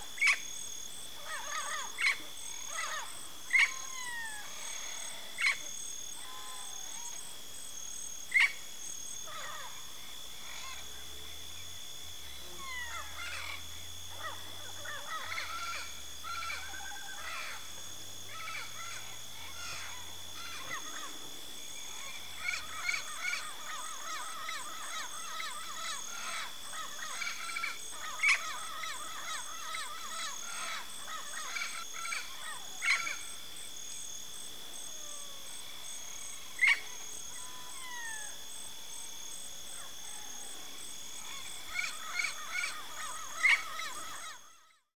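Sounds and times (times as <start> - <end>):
parrots squawking and chattering: 18.3 - 21.0, 41.2 - 44.6.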